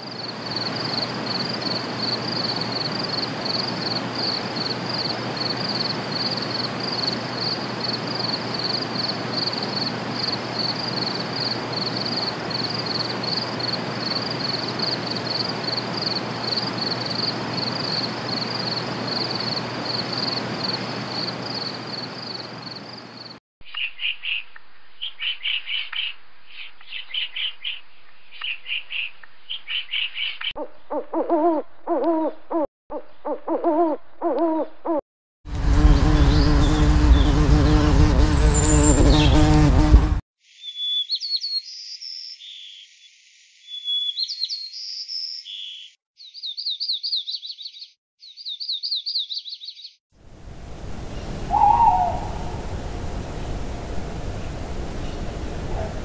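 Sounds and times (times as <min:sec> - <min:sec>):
cricket chirping: 0:00.0 - 0:23.4
sharp bird calls: 0:23.6 - 0:35.0, 0:40.6 - 0:42.9, 0:43.7 - 0:50.0, 0:51.0 - 0:52.7
background hiss: 0:50.2 - 0:56.0.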